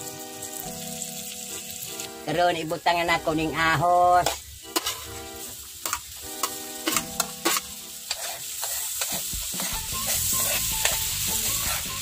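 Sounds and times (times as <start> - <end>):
garlic sizzling in a frying pan: 0.0 - 12.0
metal spoon scraping and stirring: 4.2 - 5.2, 5.8 - 12.0
spoon clicking on plate and pan: 5.8 - 9.7.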